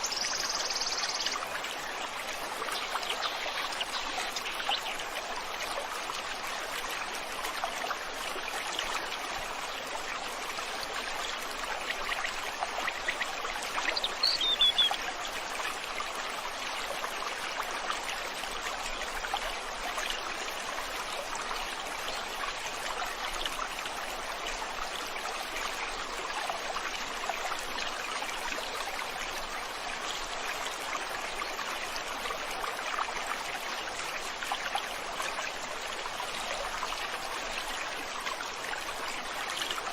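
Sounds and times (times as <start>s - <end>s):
bird chirp: 0.0s - 1.4s, 13.9s - 15.0s
river flowing over stones: 0.0s - 39.9s.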